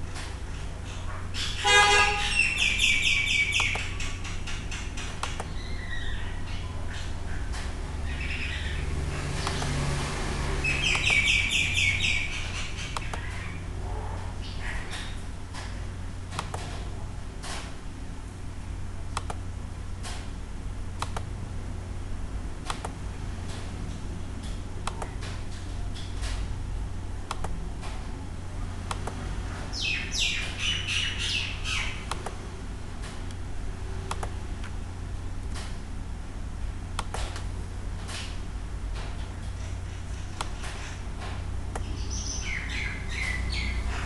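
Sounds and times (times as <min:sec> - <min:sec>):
steady low hum: 0:00.0 - 0:44.0
birds chirping: 0:00.5 - 0:09.8, 0:10.6 - 0:13.7, 0:29.7 - 0:32.1, 0:41.7 - 0:44.0.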